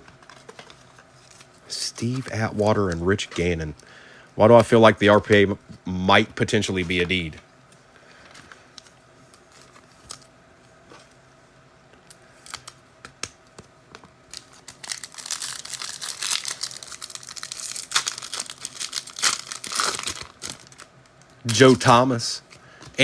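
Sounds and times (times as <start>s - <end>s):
wrapper crinkling and tearing: 14.3s - 21.7s.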